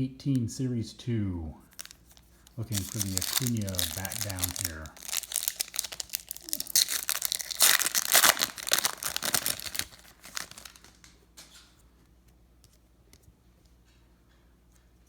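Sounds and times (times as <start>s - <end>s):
wrapper tearing and crinkling: 1.7s - 11.1s.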